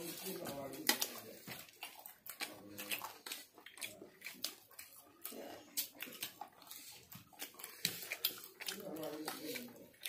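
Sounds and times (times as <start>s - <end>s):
people chewing and lip-smacking: 0.0s - 10.0s.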